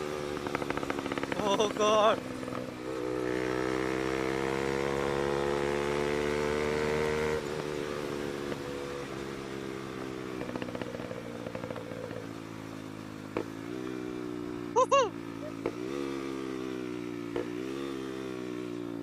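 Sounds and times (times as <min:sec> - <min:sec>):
motorcycle engine revving: 0:00.0 - 0:19.0
exhaust crackling pops: 0:00.4 - 0:01.6, 0:10.4 - 0:12.3.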